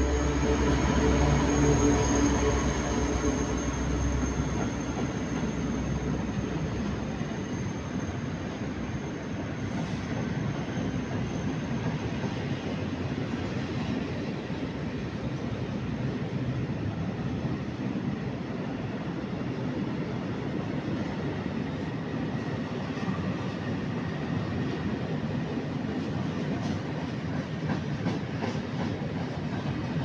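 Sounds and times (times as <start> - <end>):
diesel locomotive engine drone: 0.0 - 30.0
train wheels rumbling on rail: 0.0 - 30.0.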